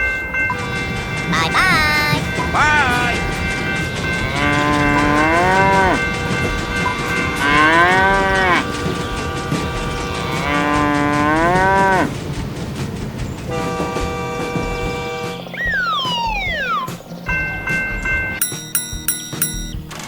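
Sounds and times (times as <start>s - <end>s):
rhythmic clatter: 0.0s - 20.0s
moo-like calls: 4.2s - 6.0s, 7.4s - 8.7s, 10.2s - 12.1s.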